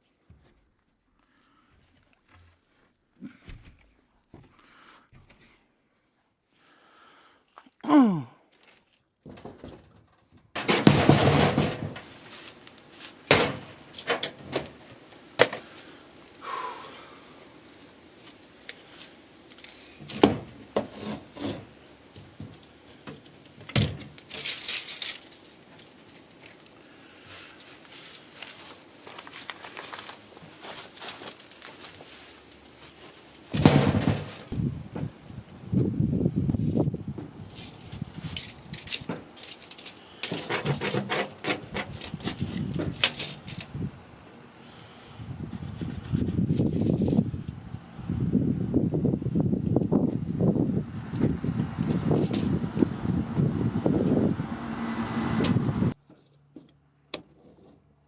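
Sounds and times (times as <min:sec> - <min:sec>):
boards and tools being handled: 0:19.5 - 0:26.6, 0:27.4 - 0:35.2, 0:37.2 - 0:43.8.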